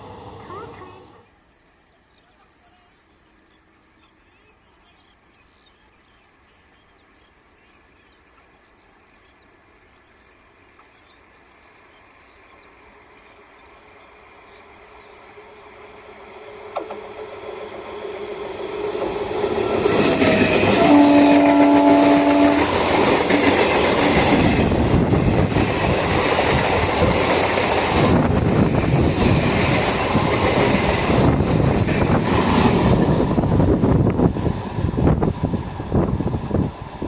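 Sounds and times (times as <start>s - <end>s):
wheels clattering over rails: 0.0s - 1.2s
train passing at speed: 0.0s - 1.8s, 6.3s - 37.0s
train horn: 19.6s - 23.0s.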